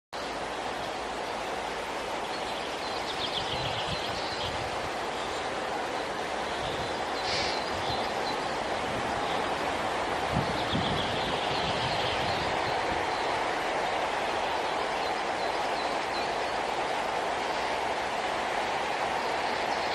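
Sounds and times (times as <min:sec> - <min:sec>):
steady rushing noise: 0:00.2 - 0:19.9.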